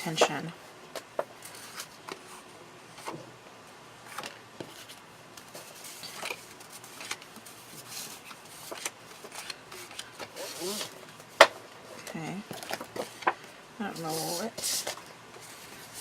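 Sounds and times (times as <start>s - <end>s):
paper rustling: 4.1s - 11.4s.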